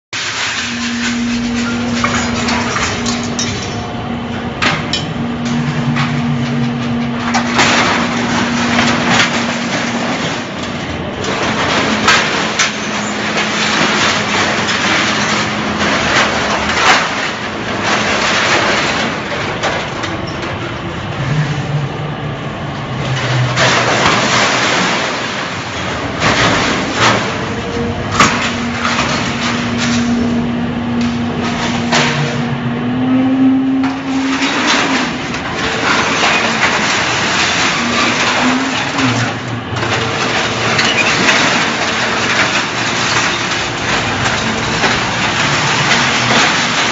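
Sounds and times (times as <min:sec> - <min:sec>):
metal scraps crunching: 0:00.1 - 0:46.9
baler machine hum: 0:00.2 - 0:46.9.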